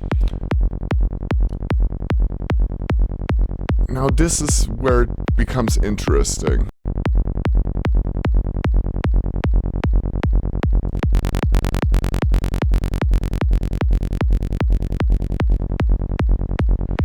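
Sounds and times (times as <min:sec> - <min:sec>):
punchy synth bassline: 0:03.9 - 0:06.7.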